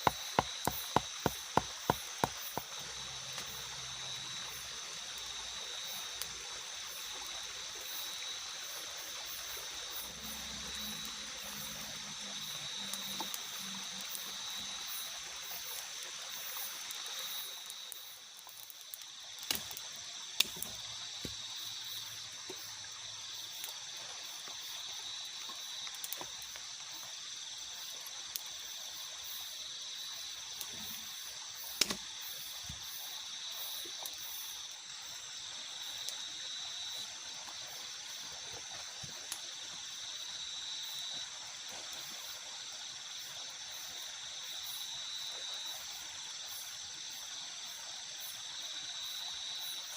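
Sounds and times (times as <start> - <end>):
high insect chirring: 0.0 - 6.1, 7.8 - 28.0, 28.6 - 37.0
light drizzle hiss: 0.0 - 49.9.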